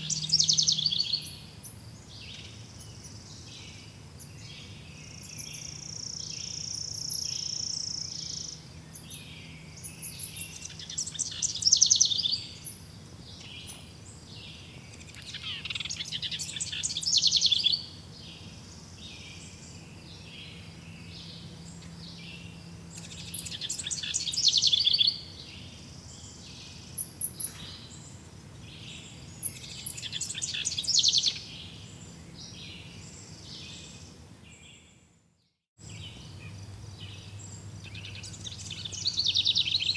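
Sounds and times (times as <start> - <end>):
bird fast trilling song: 0.0 - 3.2, 5.1 - 12.8, 22.1 - 25.3, 29.4 - 31.8, 37.5 - 39.9
birds chirping: 0.0 - 35.0, 35.8 - 39.9.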